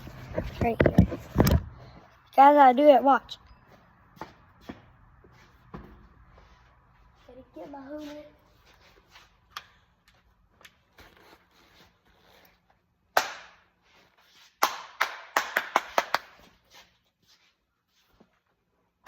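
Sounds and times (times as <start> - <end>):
hard objects knocking and clattering: 0.3 - 1.7.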